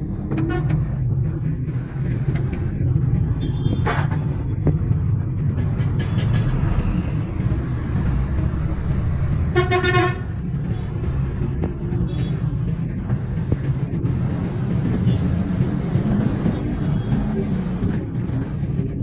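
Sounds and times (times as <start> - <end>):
traffic rumble: 0.0 - 19.0
vehicle horn toot: 9.5 - 10.3.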